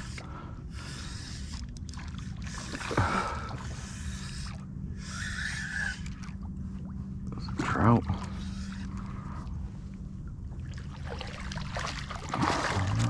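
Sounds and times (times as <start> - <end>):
water lapping against kayak hull: 0.0 - 13.0.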